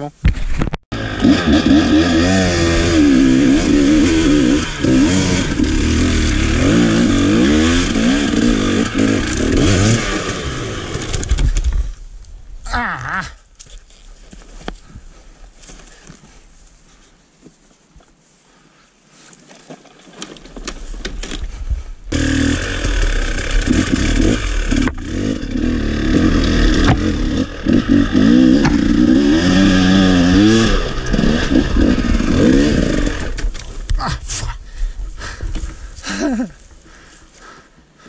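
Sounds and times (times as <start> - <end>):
two-stroke motorcycle engine revving: 0.9 - 11.4, 22.1 - 33.6.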